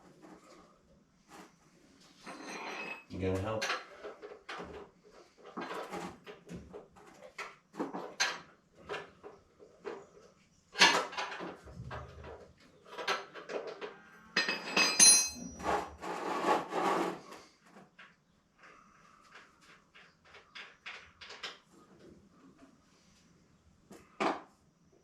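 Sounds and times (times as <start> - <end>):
metal tools knocking and clattering: 2.2 - 4.8, 10.8 - 15.8
ringing metallic clink: 14.4 - 15.6.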